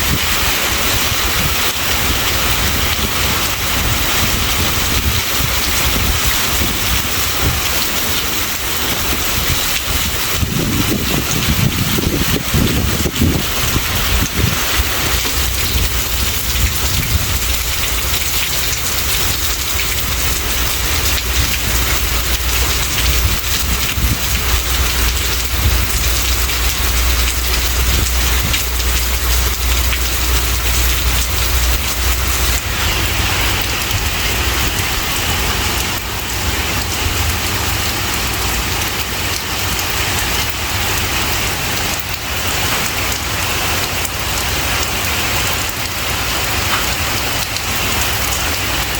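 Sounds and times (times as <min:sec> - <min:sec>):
heavy rain: 0:00.0 - 0:48.9
deep low rumble: 0:10.4 - 0:36.1.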